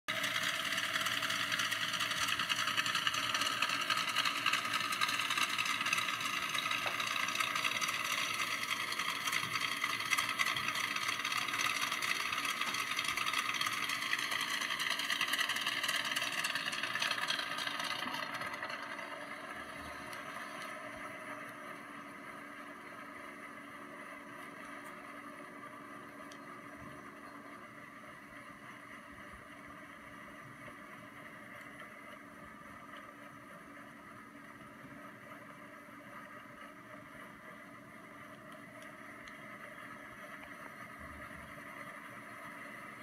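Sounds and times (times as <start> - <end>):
car engine idling: 0.1 - 43.0.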